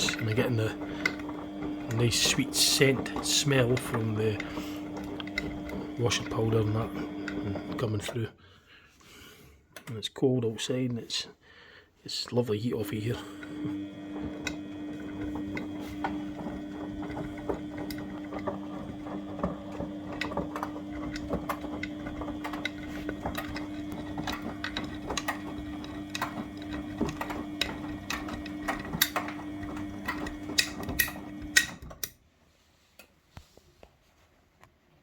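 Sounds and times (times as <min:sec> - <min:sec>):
washing machine motor humming: 0:00.0 - 0:08.2, 0:12.8 - 0:32.1.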